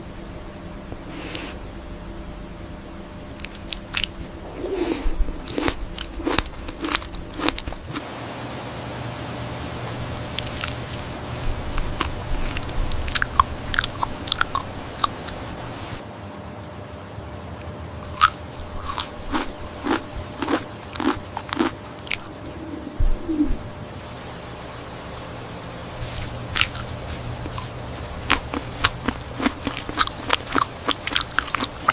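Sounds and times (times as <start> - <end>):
low steady hum: 0.0 - 31.9
crisp biting and crunching: 3.4 - 8.0, 10.2 - 15.2, 18.0 - 22.4, 26.0 - 31.9.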